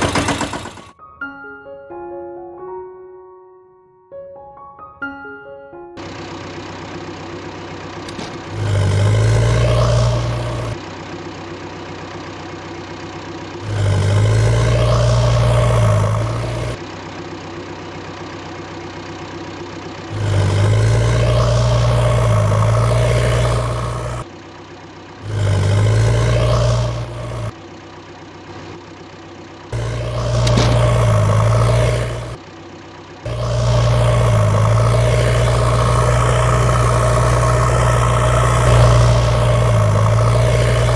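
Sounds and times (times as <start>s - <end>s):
heavy vehicle engine idling and revving: 0.0s - 1.0s, 6.0s - 40.9s.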